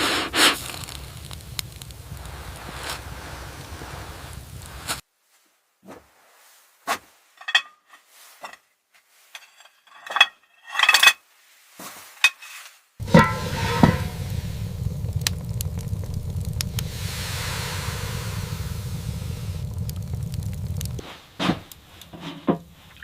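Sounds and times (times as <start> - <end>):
steady low rushing noise: 0.6 - 5.0, 13.0 - 21.0
metal clank: 7.4 - 7.8, 9.4 - 11.1, 13.0 - 14.6
metal objects clinking: 7.4 - 8.6, 9.3 - 11.2, 12.2 - 13.3.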